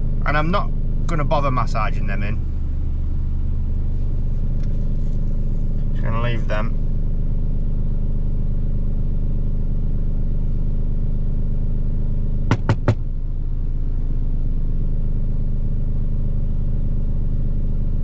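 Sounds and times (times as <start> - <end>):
truck engine idling: 0.0 - 7.3, 12.5 - 16.1.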